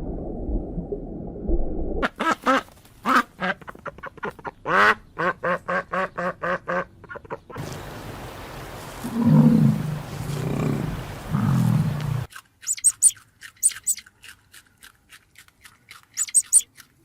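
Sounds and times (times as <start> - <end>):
duck quacks: 2.0 - 7.6
large animal calling: 9.0 - 14.0
quick high chirps: 12.6 - 14.1, 16.1 - 16.7.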